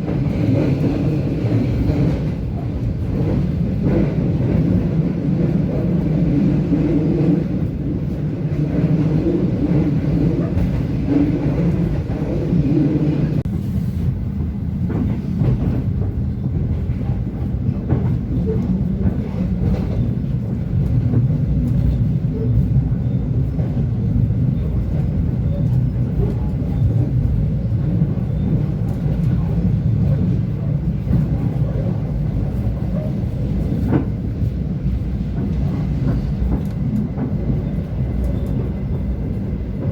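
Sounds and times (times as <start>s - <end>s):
train rumbling on rails: 0.0s - 39.9s.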